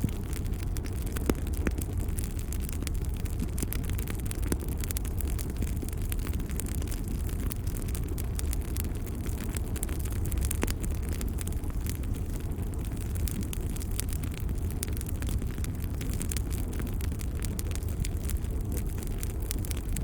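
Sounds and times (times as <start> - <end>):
low rumble of flames: 0.0 - 20.0
wood fire crackling: 0.0 - 20.0.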